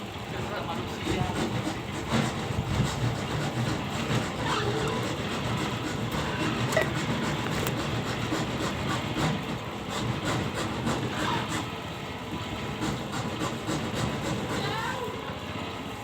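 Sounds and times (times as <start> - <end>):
motor running with rattle: 0.0 - 16.0.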